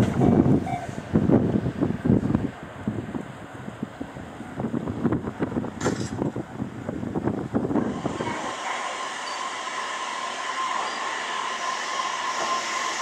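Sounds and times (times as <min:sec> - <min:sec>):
wind buffeting microphone: 0:00.0 - 0:08.7
train whine: 0:00.0 - 0:13.0
electric train rushing hiss: 0:07.2 - 0:13.0.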